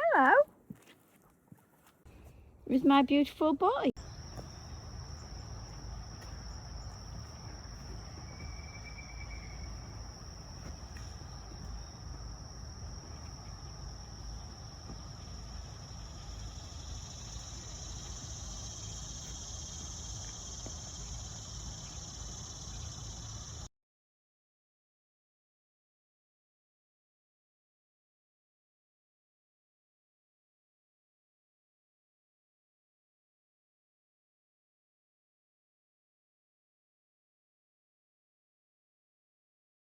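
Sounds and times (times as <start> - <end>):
insects chirring: 3.4 - 23.7.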